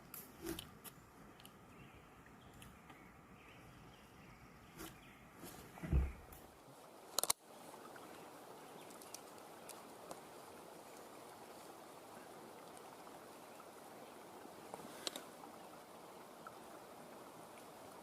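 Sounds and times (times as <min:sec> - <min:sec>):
water noise: 0:00.0 - 0:18.0
low handling thump: 0:05.8 - 0:06.3
sharp clicks: 0:07.2 - 0:07.4.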